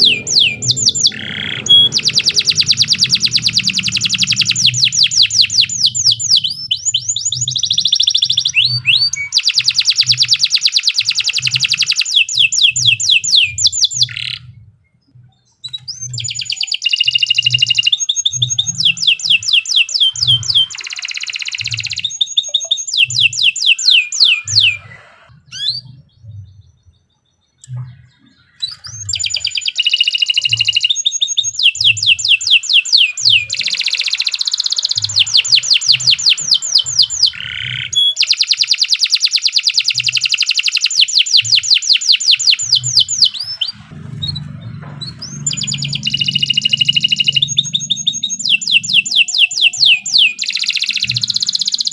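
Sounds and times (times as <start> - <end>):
canary singing trills: 0.0 - 51.9
low regular thump: 42.8 - 46.0.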